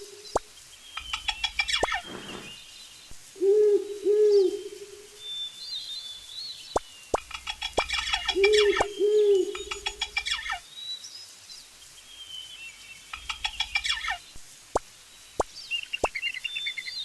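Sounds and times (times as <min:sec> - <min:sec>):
birds chattering chirps: 0:00.0 - 0:03.4, 0:04.0 - 0:11.1, 0:11.7 - 0:14.4
low hoots: 0:03.4 - 0:05.1, 0:08.2 - 0:09.8.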